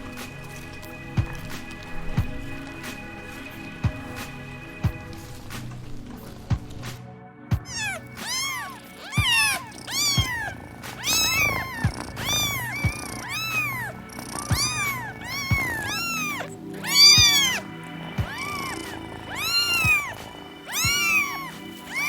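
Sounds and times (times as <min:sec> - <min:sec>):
background music: 0:00.0 - 0:22.0
cat meowing: 0:07.6 - 0:22.0.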